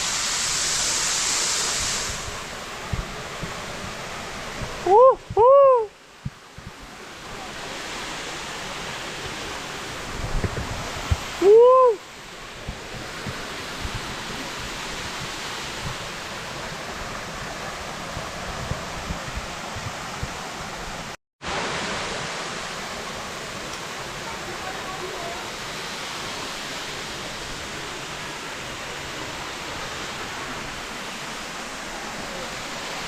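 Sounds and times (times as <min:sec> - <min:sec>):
waterfall rushing: 0:00.0 - 0:33.0
person whooping shout: 0:04.8 - 0:05.9, 0:11.4 - 0:12.0.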